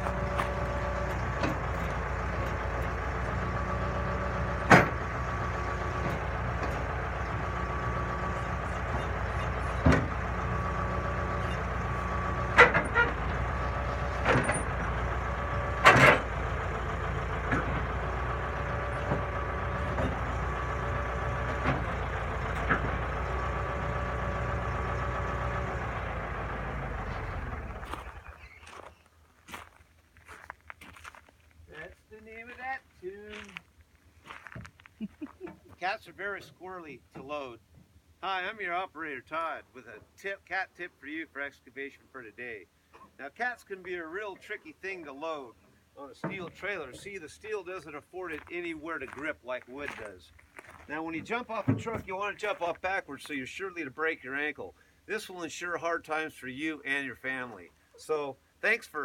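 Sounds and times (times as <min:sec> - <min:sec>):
bulldozer diesel engine running: 0:00.0 - 0:29.7, 0:46.0 - 0:58.2.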